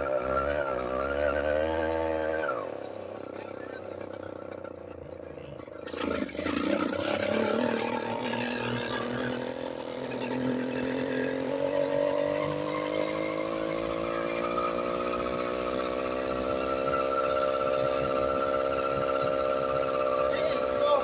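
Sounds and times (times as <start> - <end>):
small motorbike engine running: 0.0 - 21.0.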